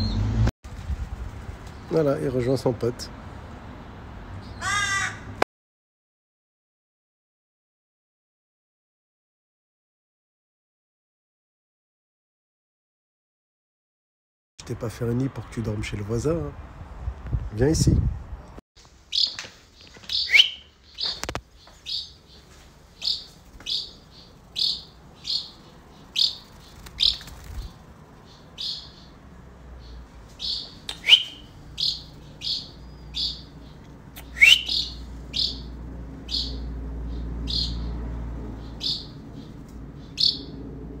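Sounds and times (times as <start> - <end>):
louder sweeping bird calls: 19.1 - 29.2, 29.8 - 40.6
bird chirping in short high notes: 20.1 - 20.6, 30.4 - 33.4, 34.2 - 35.6.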